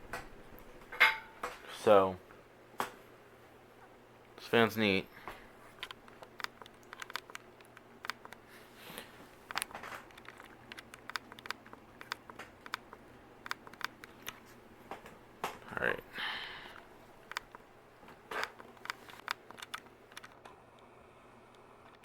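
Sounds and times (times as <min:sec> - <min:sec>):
ceiling fan humming: 0:00.0 - 0:22.0
light clicks and crackles: 0:05.2 - 0:15.7, 0:16.7 - 0:20.9.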